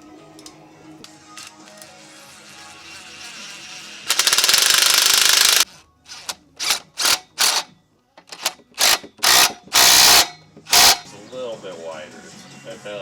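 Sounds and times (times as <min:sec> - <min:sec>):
ratcheting tool rattling: 0:01.3 - 0:11.1.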